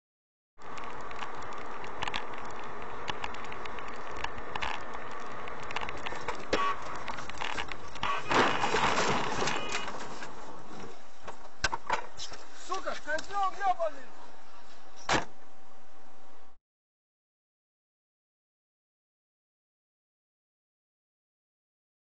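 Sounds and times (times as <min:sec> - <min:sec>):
road and engine noise: 0:00.6 - 0:16.6.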